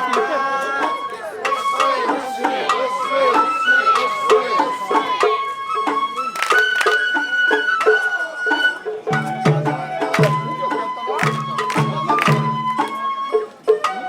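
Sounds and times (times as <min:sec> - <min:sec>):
bamboo flute high notes: 0:00.0 - 0:14.0.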